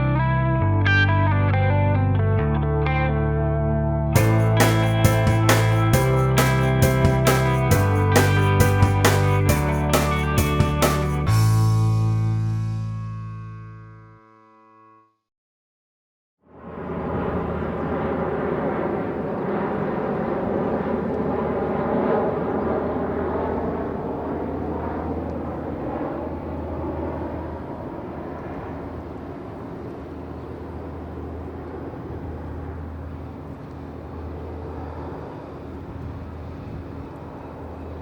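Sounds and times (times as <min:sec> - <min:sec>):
large engine humming: 0:04.2 - 0:13.3.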